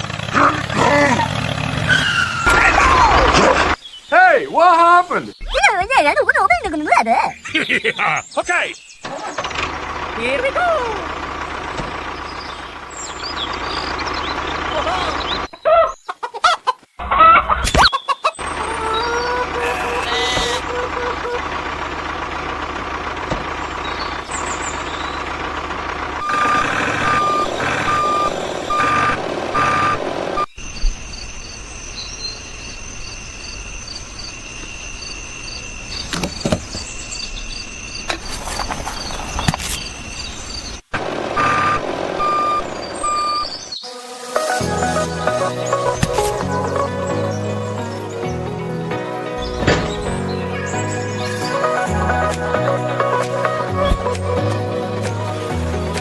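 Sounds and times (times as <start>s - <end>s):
truck engine running: 0.0s - 3.8s, 7.5s - 15.5s, 18.4s - 43.7s, 44.3s - 56.0s
reversing alarm beeping: 26.2s - 31.7s, 41.4s - 43.6s.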